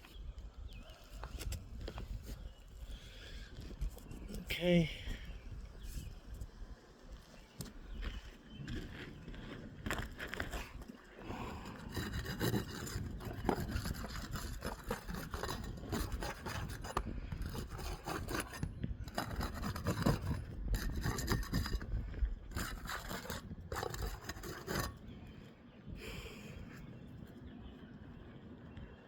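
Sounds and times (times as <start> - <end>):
scraping on roof shingles: 9.8 - 25.0.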